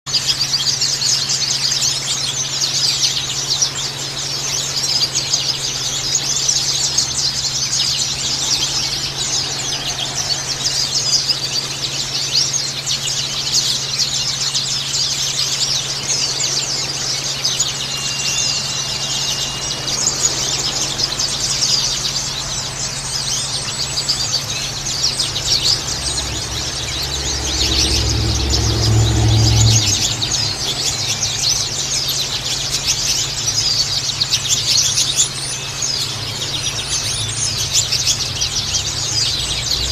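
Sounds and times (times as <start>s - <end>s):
birds chirping and twittering: 0.0s - 39.9s
steady low hum: 4.0s - 35.0s
low rumble: 19.2s - 32.7s.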